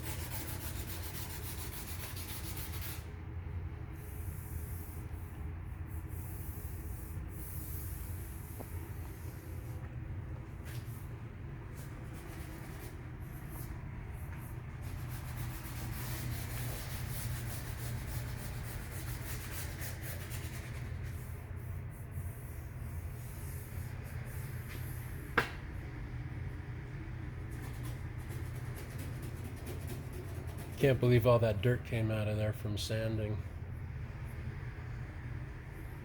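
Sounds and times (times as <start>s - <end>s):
sanding car body panel: 0.0s - 3.1s, 14.8s - 20.9s
sharp tap: 25.4s - 25.6s.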